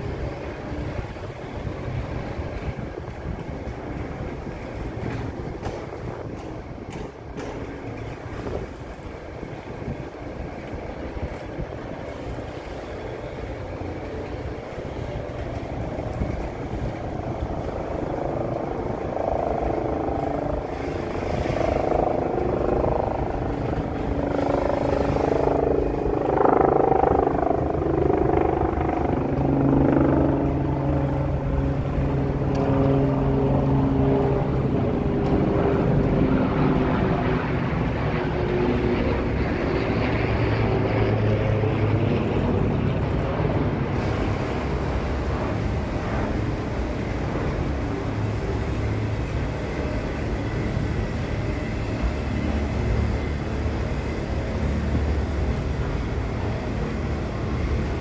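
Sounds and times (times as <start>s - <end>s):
freight train rumbling past: 0.0s - 58.0s.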